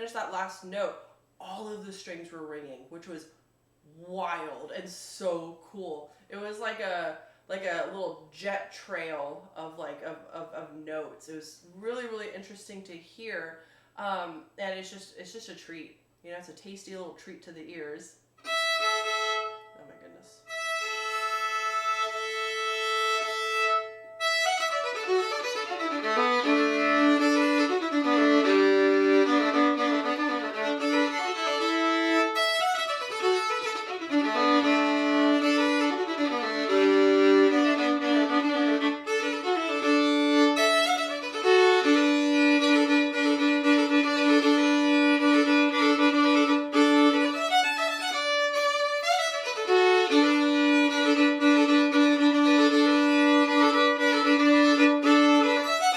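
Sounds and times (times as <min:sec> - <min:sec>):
solo bowed violin: 0:18.4 - 0:55.9.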